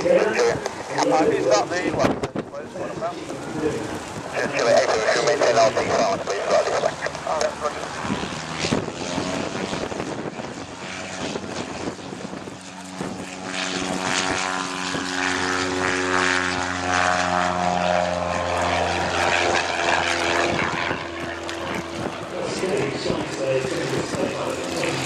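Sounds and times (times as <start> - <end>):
light aircraft propeller drone: 0.0 - 25.0.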